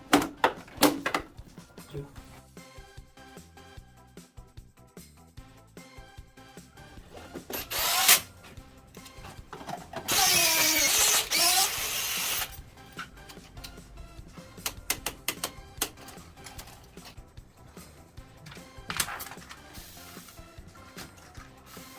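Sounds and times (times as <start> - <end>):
background music: 0.0 - 21.9
power drill running: 7.5 - 8.3, 10.0 - 12.6.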